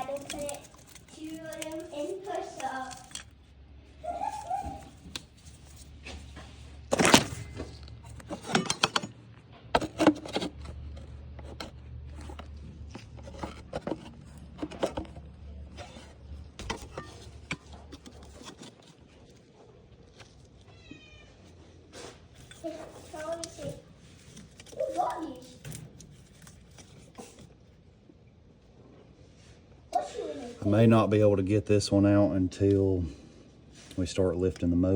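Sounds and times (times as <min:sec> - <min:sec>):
plastic connectors clicking: 0:00.0 - 0:01.9.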